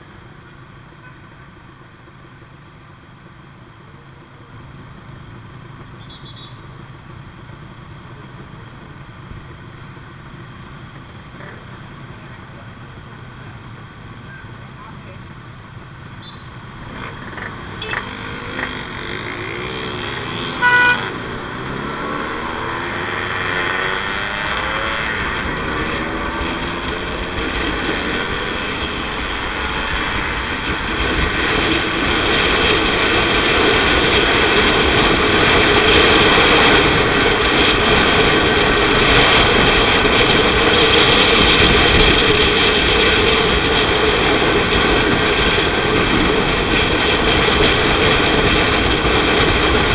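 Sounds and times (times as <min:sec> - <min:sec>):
wind and road noise: 0:00.0 - 0:49.9
motorcycle engine accelerating: 0:04.6 - 0:49.9
short vehicle horn toot: 0:06.0 - 0:06.6, 0:20.6 - 0:21.2.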